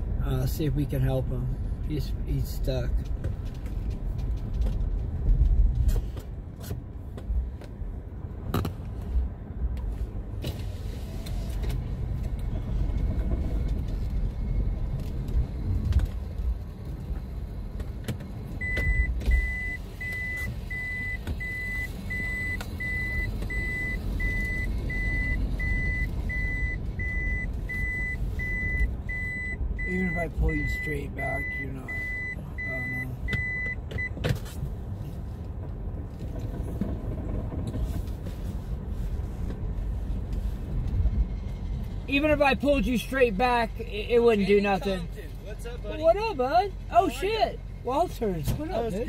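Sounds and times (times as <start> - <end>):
vehicle engine rumbling: 0.0 - 49.0
electronic warning beeps: 18.6 - 34.2.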